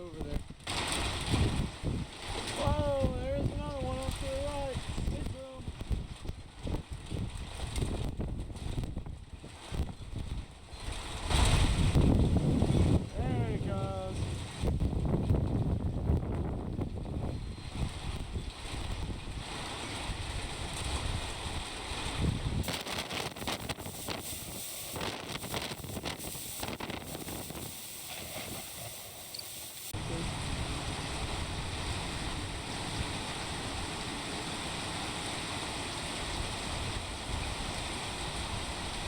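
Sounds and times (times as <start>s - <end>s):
wind buffeting microphone: 0.1s - 34.9s
hiss with crackles: 22.6s - 30.2s.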